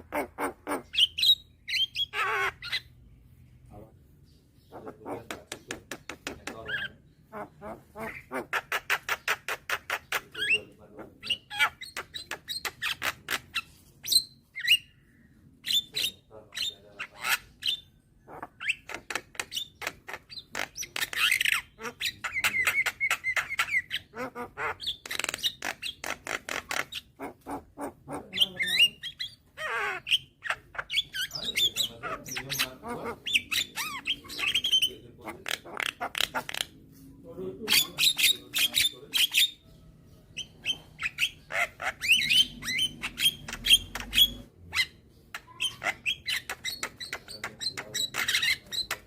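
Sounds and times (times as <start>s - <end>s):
myna calling: 18.3s - 36.8s.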